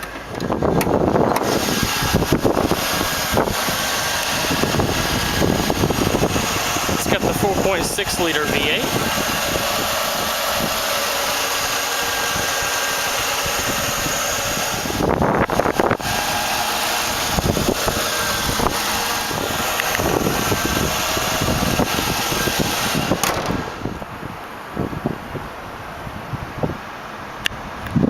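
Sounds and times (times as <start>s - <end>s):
car engine idling: 0.0s - 25.7s
knocks and bumps: 23.1s - 24.0s.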